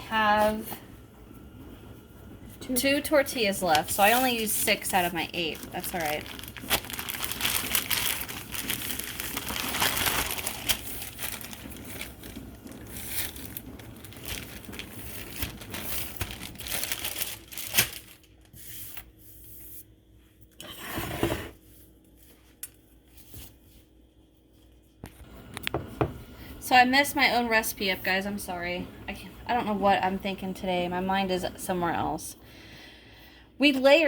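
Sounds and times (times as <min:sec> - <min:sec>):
tortillas rustling and crinkling: 0:03.7 - 0:19.1.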